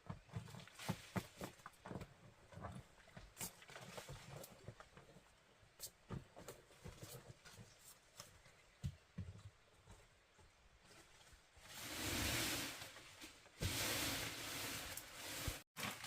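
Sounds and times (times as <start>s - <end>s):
faint irregular knocks and taps: 0.0s - 11.0s.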